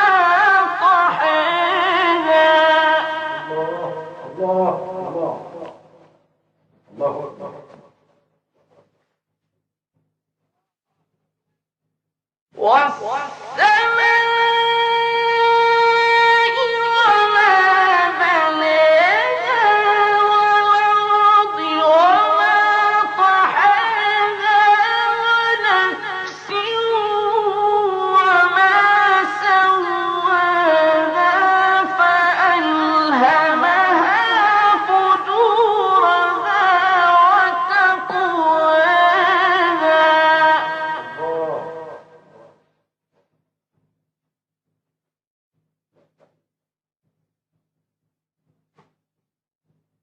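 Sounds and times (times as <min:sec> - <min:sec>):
man chanting recitation: 0:00.0 - 0:06.0, 0:06.8 - 0:08.0, 0:12.6 - 0:42.7.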